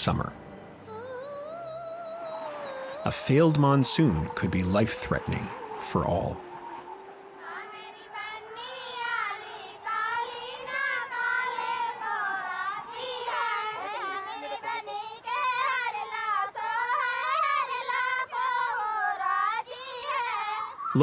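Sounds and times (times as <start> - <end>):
held low drone note: 0.0 - 9.2
high voices singing: 0.0 - 21.0.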